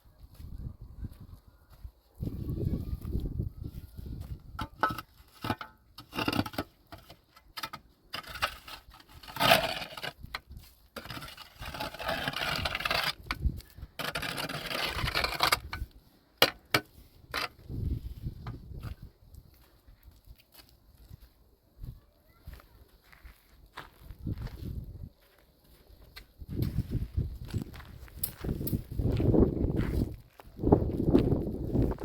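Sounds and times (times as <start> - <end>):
scraping or rustling: 4.1 - 19.1.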